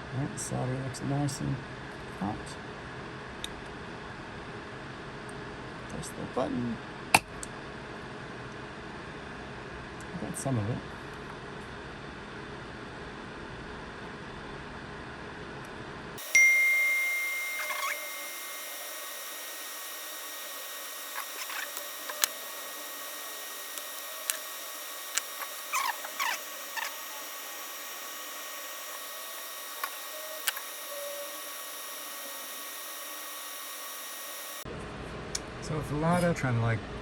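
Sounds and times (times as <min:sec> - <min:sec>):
squeaky tool scrapes: 0:17.0 - 0:32.6.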